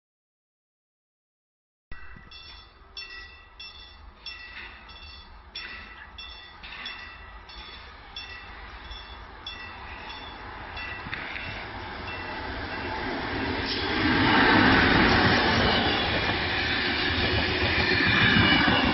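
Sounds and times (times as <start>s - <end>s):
level crossing warning bell: 1.9s - 13.5s
train rumble: 2.0s - 18.9s.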